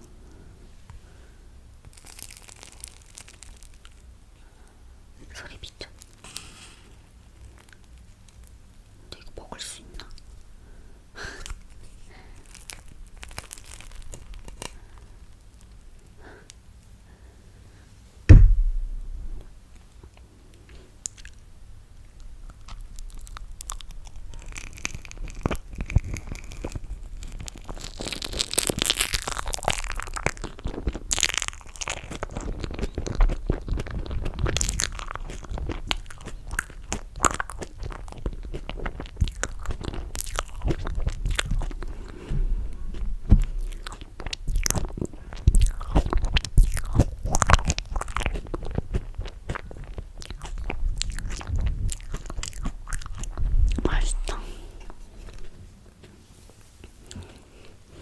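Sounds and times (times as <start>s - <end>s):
chewing and biting: 11.4s - 15.1s, 22.5s - 55.6s
mouth clicks and smacks: 22.5s - 28.1s, 42.8s - 55.5s.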